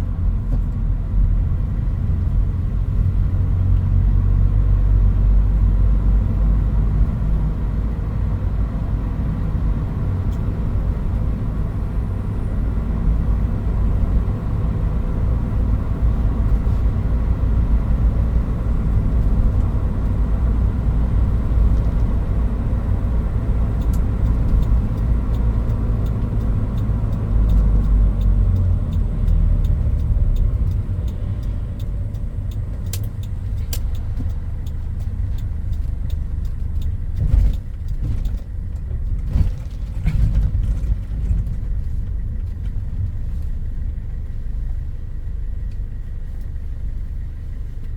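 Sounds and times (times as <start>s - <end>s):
engine and road rumble: 0.0s - 47.9s
faint ticks: 23.8s - 39.2s.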